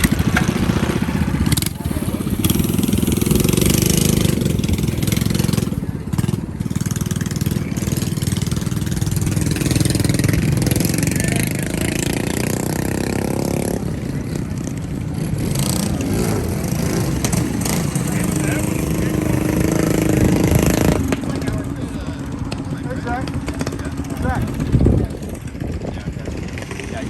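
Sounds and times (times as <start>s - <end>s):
engine revving: 0.0s - 27.0s
mini bike engines chugging: 0.0s - 27.0s.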